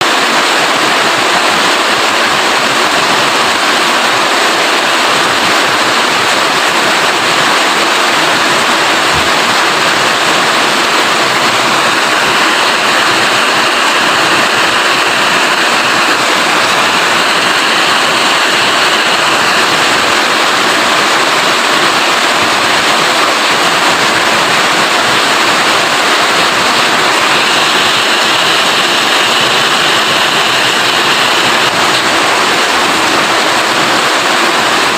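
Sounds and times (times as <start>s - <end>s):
steady rain: 0.0s - 34.9s.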